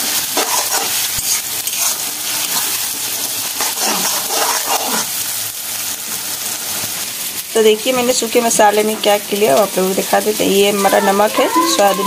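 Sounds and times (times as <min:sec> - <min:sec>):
spatula stirring: 0:00.0 - 0:05.2
onions sizzling in oil: 0:00.0 - 0:12.0.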